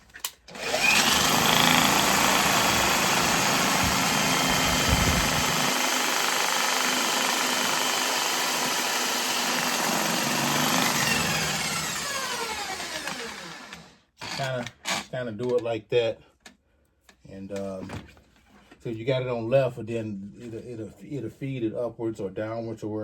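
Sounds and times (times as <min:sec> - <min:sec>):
electric drill spinning drain snake: 0:00.5 - 0:15.1.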